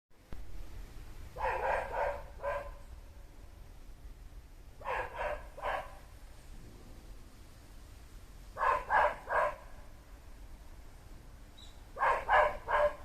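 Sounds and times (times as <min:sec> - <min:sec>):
dog barking: 0:01.4 - 0:02.8, 0:04.8 - 0:06.1, 0:08.6 - 0:09.8, 0:12.0 - 0:13.0.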